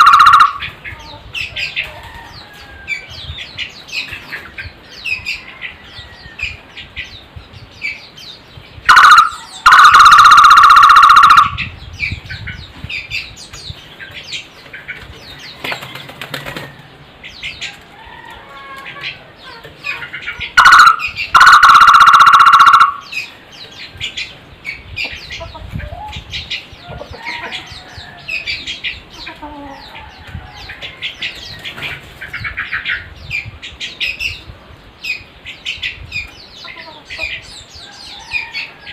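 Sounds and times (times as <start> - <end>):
barbet calling loudly: 0.0 - 0.8, 8.9 - 11.7, 20.5 - 23.3
small birds chirping: 0.0 - 38.9.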